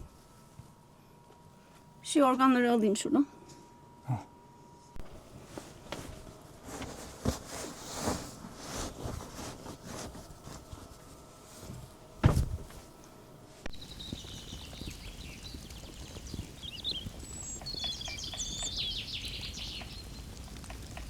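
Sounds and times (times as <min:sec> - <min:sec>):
rustling and light knocks: 0:05.4 - 0:13.1
loud thump: 0:12.2 - 0:12.7
birds chirping: 0:13.7 - 0:21.0.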